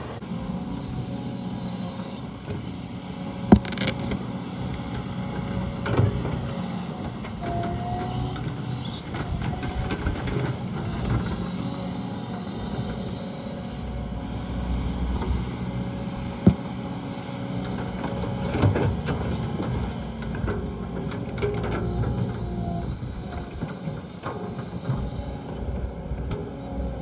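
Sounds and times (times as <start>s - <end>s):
vehicle body rattling: 3.5s - 4.3s.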